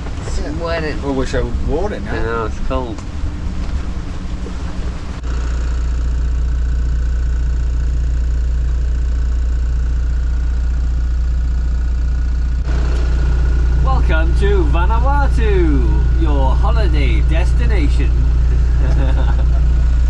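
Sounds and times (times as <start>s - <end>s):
wind and sea noise: 0.0s - 5.2s
boat diesel engine humming: 0.0s - 20.0s.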